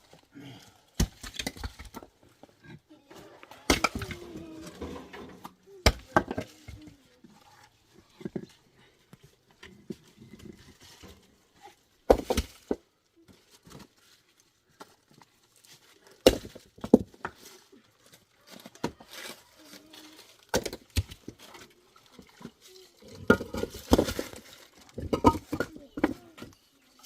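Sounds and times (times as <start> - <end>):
hard objects knocking and clinking: 22.2 - 26.6.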